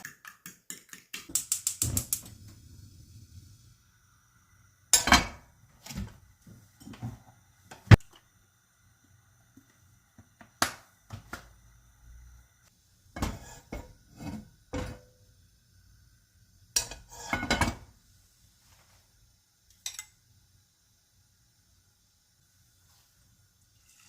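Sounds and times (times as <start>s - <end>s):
dishes and utensils clinking: 16.8s - 17.8s, 19.8s - 20.2s.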